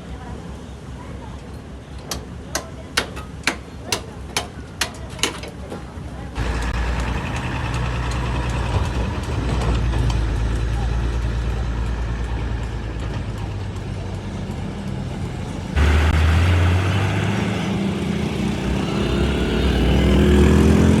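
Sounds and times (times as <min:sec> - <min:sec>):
diesel truck engine running: 0:06.4 - 0:21.0.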